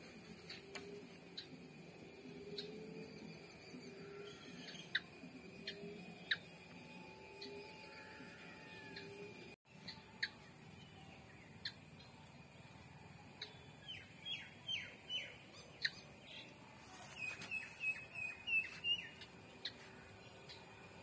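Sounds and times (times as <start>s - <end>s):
faint high whine: 0.0s - 14.7s
birds chirping: 0.4s - 21.0s.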